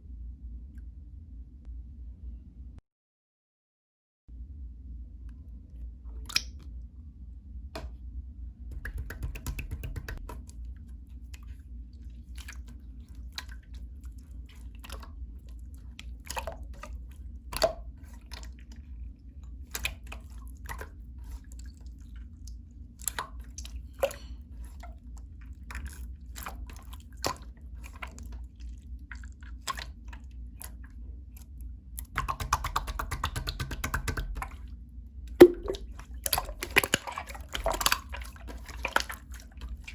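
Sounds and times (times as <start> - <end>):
low steady hum: 0.0 - 2.8, 4.3 - 39.9
air bubbles popping: 8.7 - 10.4, 32.0 - 34.6, 35.3 - 39.9
slime squishing: 8.7 - 39.9.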